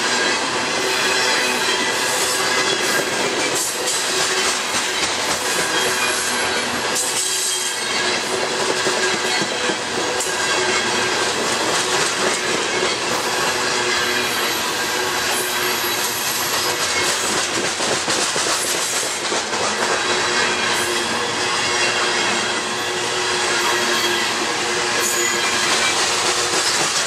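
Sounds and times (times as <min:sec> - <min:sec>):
steel wheels rumbling on rail: 0:00.0 - 0:27.0
wheels clicking over rail joints: 0:15.8 - 0:20.2, 0:25.0 - 0:27.0.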